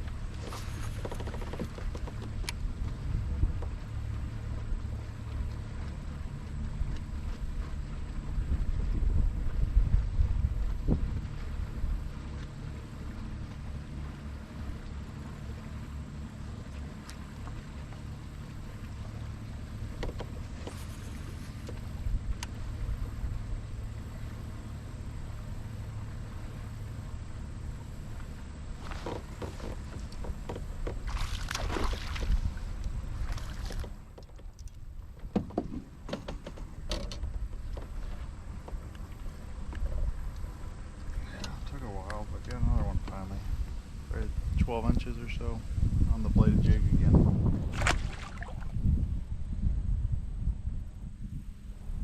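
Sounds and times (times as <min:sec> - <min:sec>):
wind rumbling on microphone: 0:00.0 - 0:15.6, 0:16.4 - 0:52.0
water splashing: 0:00.0 - 0:34.7, 0:47.6 - 0:48.9
water sloshing: 0:00.0 - 0:44.1, 0:47.5 - 0:49.0
knocks on kayak: 0:35.2 - 0:38.1.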